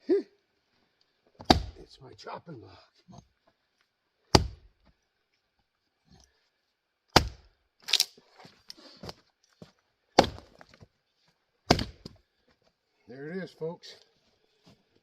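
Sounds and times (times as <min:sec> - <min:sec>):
axe splitting wood: 0:01.4 - 0:01.8, 0:04.3 - 0:04.8, 0:07.1 - 0:08.1, 0:10.2 - 0:10.8, 0:11.6 - 0:12.2.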